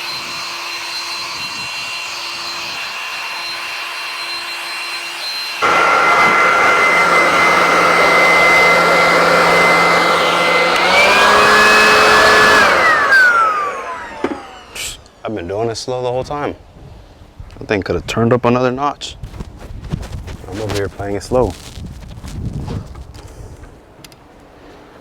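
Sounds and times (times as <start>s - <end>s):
electric blower whining: 0.0s - 15.2s.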